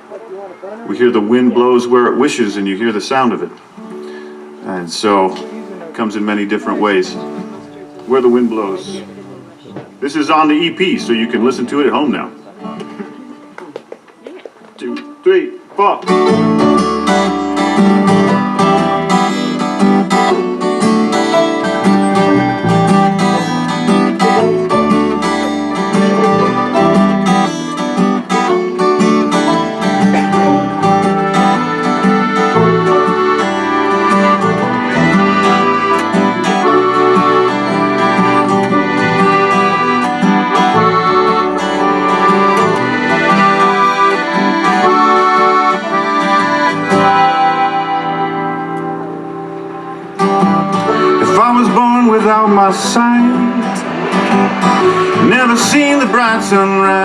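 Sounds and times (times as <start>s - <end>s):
strummed acoustic guitar: 0.0s - 13.6s, 15.8s - 57.0s
acoustic folk band playing: 0.0s - 57.0s
moving bass line: 21.6s - 27.7s, 50.3s - 57.0s.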